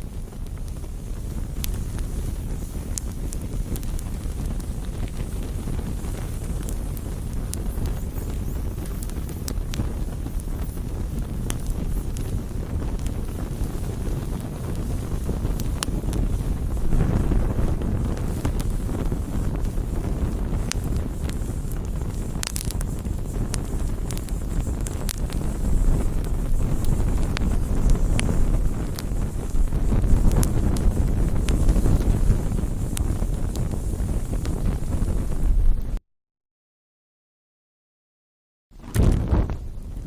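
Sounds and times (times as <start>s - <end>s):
campfire crackling and popping: 0.0s - 36.0s, 38.8s - 40.0s
low steady rumble: 11.3s - 22.4s.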